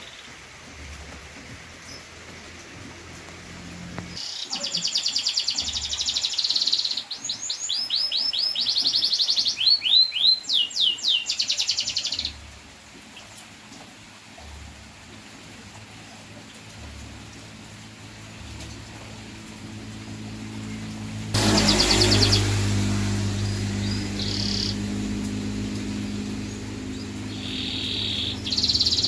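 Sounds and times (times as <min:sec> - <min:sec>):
canary singing trills: 0:04.2 - 0:12.4, 0:20.5 - 0:29.0.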